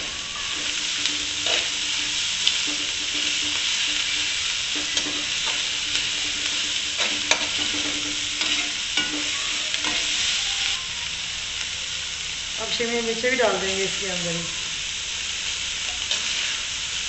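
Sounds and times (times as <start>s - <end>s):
metal spatula scraping pan: 0.0s - 10.4s
food sizzling in a pan: 0.0s - 17.0s.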